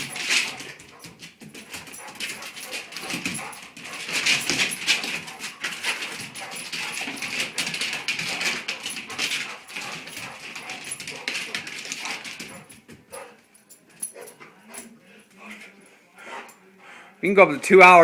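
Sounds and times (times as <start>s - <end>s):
dog claws scuffing on floor: 0.0s - 13.4s.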